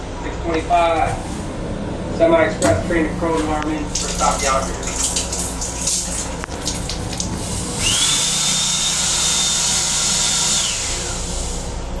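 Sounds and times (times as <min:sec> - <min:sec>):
electric motor whine: 0:07.6 - 0:11.8.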